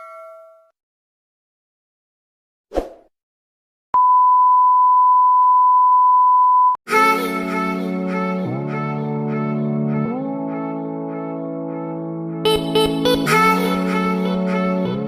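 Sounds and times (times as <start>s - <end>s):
steady single-pitch beep: 4.0s - 6.8s
music: 6.9s - 15.0s.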